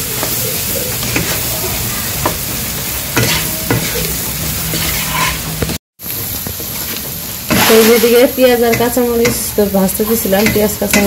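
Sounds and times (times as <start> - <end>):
onions sizzling in hot oil: 0.0 - 11.0
wooden spatula scraping pan: 4.7 - 5.6, 7.5 - 9.4.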